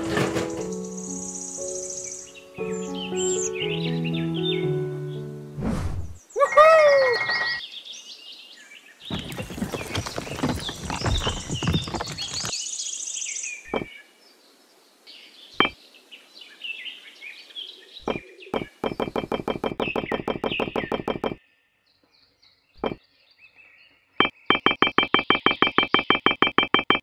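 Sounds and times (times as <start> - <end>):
birds chirping: 0.0 - 5.4, 6.2 - 14.3, 15.1 - 26.3
clicks of small bricks set down: 9.1 - 12.6.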